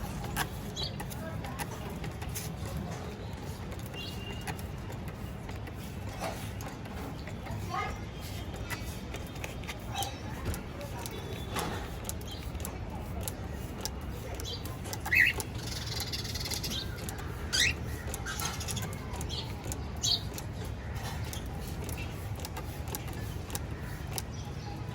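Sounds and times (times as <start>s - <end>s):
cockatiels chirping: 15.0s - 20.3s.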